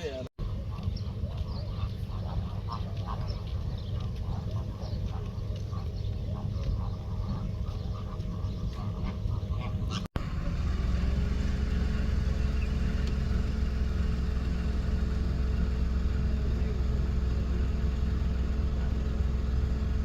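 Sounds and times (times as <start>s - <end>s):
ducks quacking: 0.0s - 10.1s
low engine hum: 0.0s - 20.0s
low rumble: 0.4s - 20.0s.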